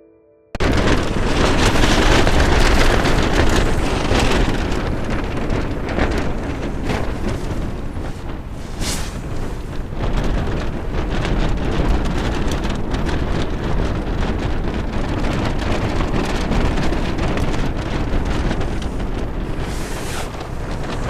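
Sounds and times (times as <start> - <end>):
rapid crackle of small ticks: 0.6 - 21.0
windstorm buffeting microphone: 0.6 - 21.0.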